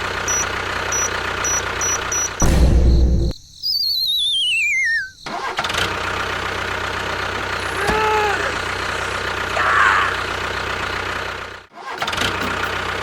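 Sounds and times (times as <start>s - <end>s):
steady motor noise: 0.0s - 2.4s, 5.3s - 11.7s
wavering whistle-like tone: 1.0s - 5.2s.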